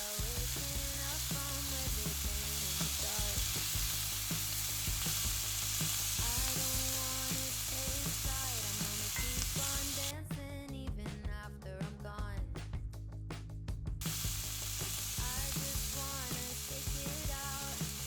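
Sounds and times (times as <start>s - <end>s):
food sizzling in a pan: 0.0s - 10.1s, 14.0s - 18.0s.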